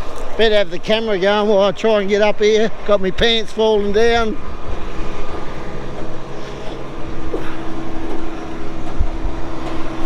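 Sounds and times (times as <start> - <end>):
diesel engine running: 2.7 - 10.0.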